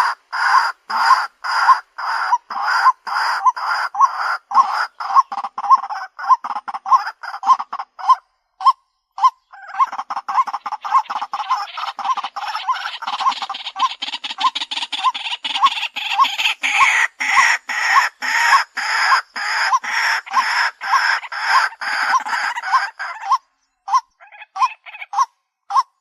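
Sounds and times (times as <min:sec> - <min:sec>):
waterhen calling: 0:00.0 - 0:26.0.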